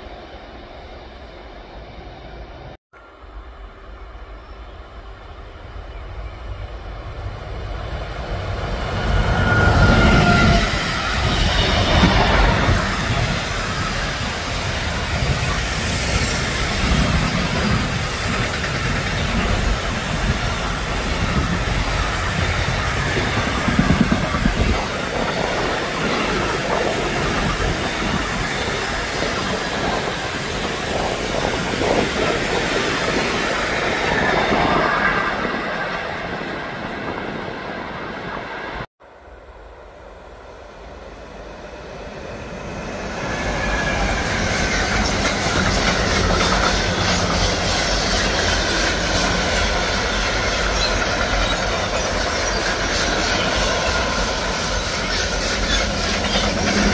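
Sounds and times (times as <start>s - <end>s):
train passing: 0.0s - 56.9s.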